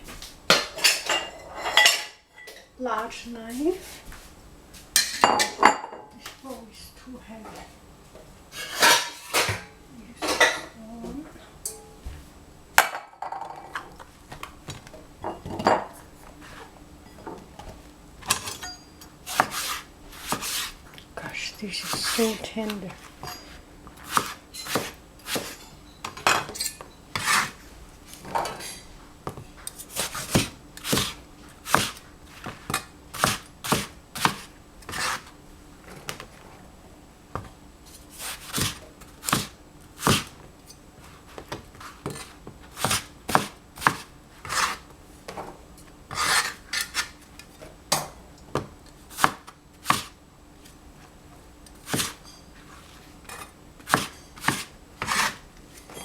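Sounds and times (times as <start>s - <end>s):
knife cutting on a cutting board: 19.3s - 20.8s, 21.8s - 23.4s, 24.0s - 25.6s, 27.2s - 27.6s, 29.8s - 32.6s, 33.2s - 35.3s, 38.1s - 40.3s, 41.8s - 44.8s, 46.1s - 47.2s, 51.8s - 52.2s, 53.9s - 55.4s.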